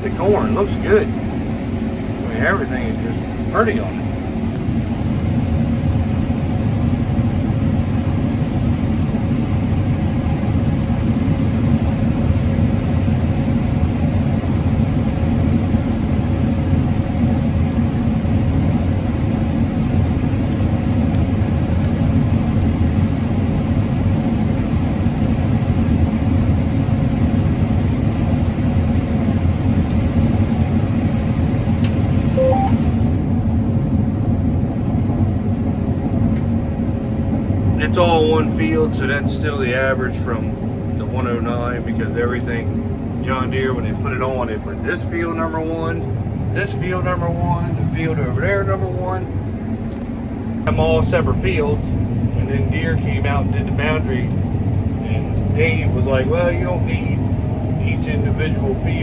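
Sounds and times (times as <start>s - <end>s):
combine harvester droning: 0.0s - 5.4s
faint beep: 32.4s - 32.9s.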